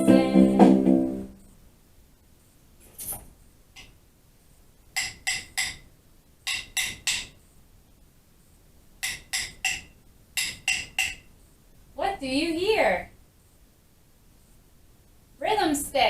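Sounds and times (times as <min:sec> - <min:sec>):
wooden rhythm sticks clicking: 0:05.0 - 0:07.4, 0:09.0 - 0:11.3.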